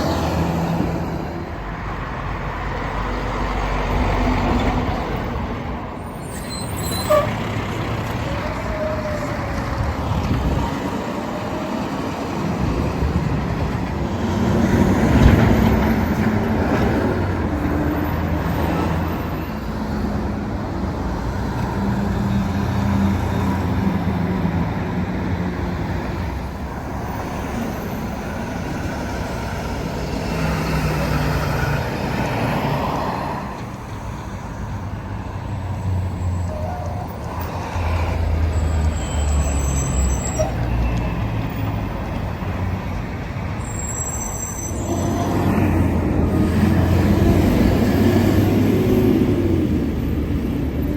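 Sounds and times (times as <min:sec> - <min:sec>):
street traffic: 0:00.0 - 0:50.9.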